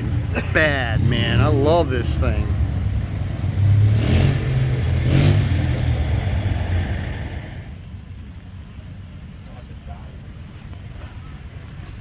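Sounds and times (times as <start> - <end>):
truck engine rumbling and revving: 0.0 - 7.9.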